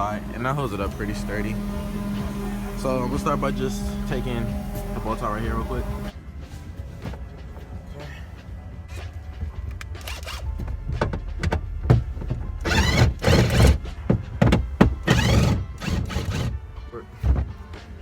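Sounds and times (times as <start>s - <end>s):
rasping ratchet-like sounds: 10.0s - 10.5s, 12.6s - 13.9s, 15.0s - 16.6s.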